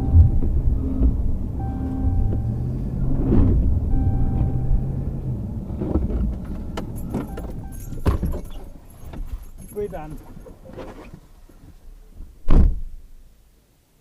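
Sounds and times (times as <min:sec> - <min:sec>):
short repeating tone: 0:00.0 - 0:01.0, 0:01.6 - 0:02.6, 0:03.9 - 0:05.0
vehicle engine rumbling: 0:00.0 - 0:13.7.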